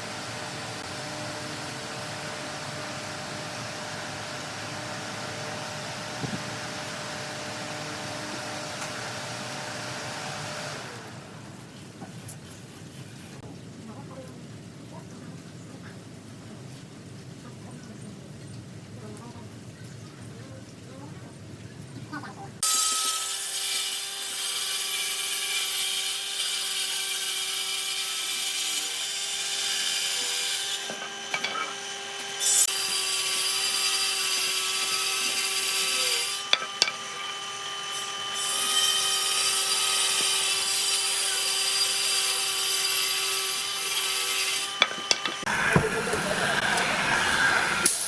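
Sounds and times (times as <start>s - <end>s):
power tool grinding wood: 22.6s - 48.0s
motor hum: 44.8s - 48.0s.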